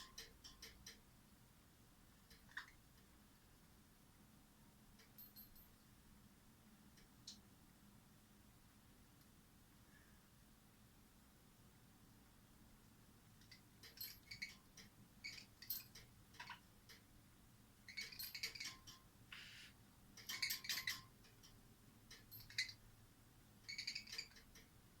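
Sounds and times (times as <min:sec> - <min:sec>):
bell toy jingling against cage bars: 0:13.8 - 0:14.6, 0:17.9 - 0:19.0, 0:20.2 - 0:21.1, 0:22.1 - 0:22.8, 0:23.7 - 0:24.6.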